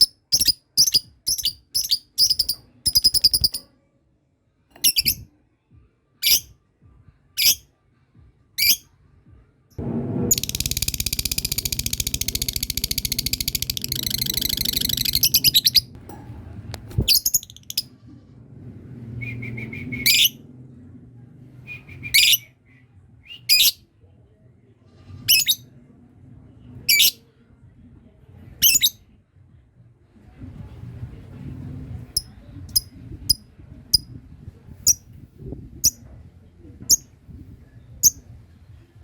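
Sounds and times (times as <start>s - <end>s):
lovebird trilling chatter: 10.3s - 15.9s.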